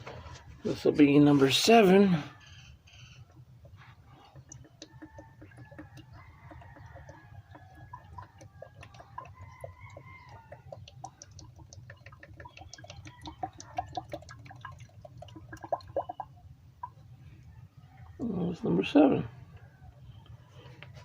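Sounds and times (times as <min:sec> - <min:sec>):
oil glugging from a bottle: 0:02.8 - 0:17.5.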